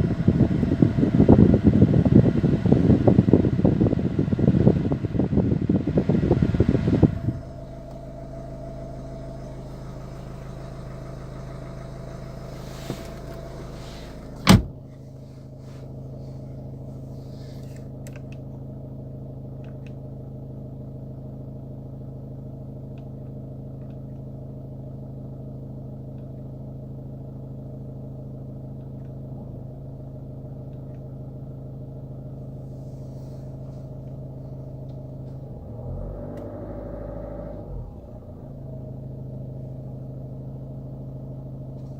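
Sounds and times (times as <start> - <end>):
diesel engine idling: 0.0 - 23.6, 26.6 - 36.0.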